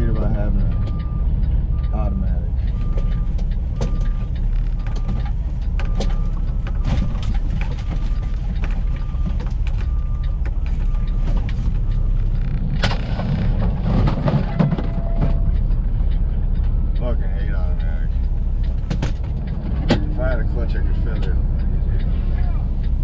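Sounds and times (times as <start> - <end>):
backup alarm beeping: 0.0 - 12.4, 14.4 - 15.7
truck engine running: 0.0 - 23.0.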